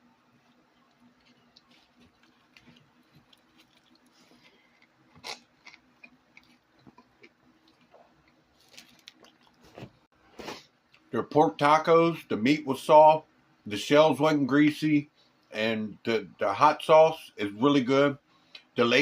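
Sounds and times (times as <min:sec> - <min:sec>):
person chewing: 0:00.2 - 0:11.1.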